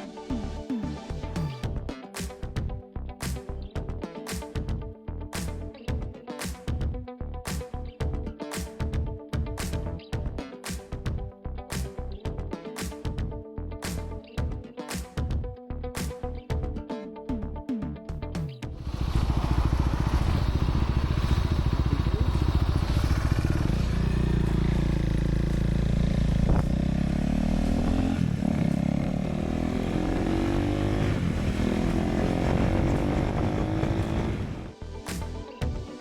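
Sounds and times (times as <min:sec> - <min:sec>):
motorcycle engine accelerating: 0:18.7 - 0:34.8.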